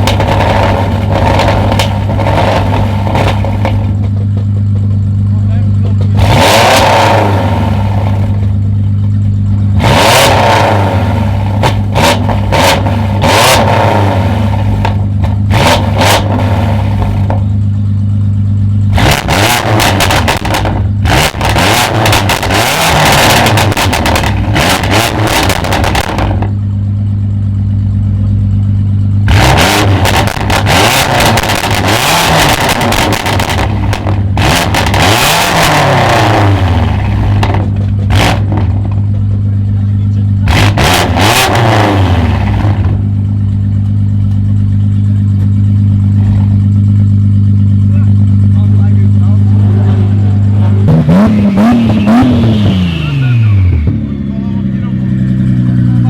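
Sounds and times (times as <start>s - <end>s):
exhaust cracks and pops: 0.0s - 6.2s, 19.1s - 26.6s, 30.0s - 35.1s, 36.9s - 40.3s
car engine revving: 0.0s - 56.0s.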